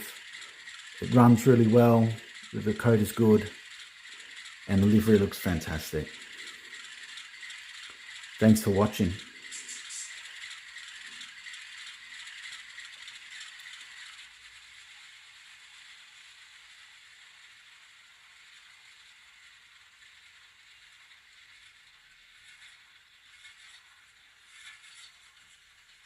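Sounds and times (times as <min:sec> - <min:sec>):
model train wheels rattling on rail: 0:00.0 - 0:26.0.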